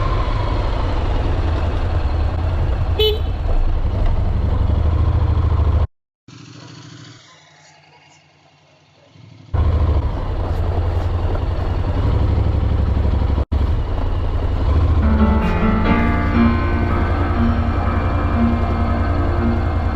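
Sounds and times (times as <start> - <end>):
wind and road rush: 0.0 - 5.9, 9.5 - 15.4
motorcycle engine drone: 0.0 - 19.9.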